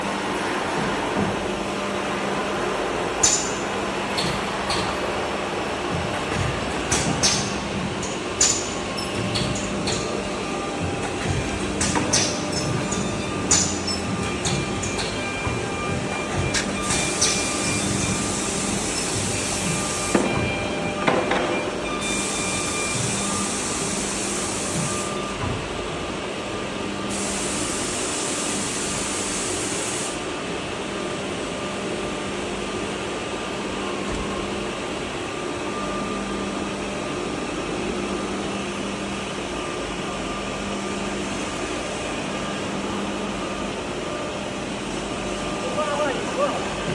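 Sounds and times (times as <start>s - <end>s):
machine line humming: 5.6s - 30.8s.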